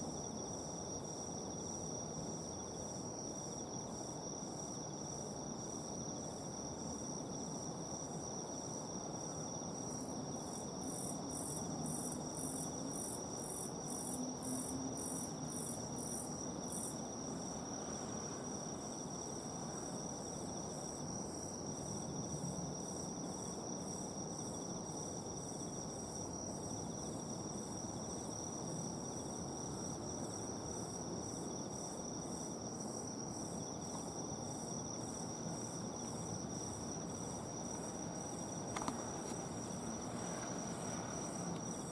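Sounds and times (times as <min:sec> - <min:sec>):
cricket chirping in pulses: 0:00.0 - 0:41.9
insect steady high trill: 0:05.6 - 0:41.9.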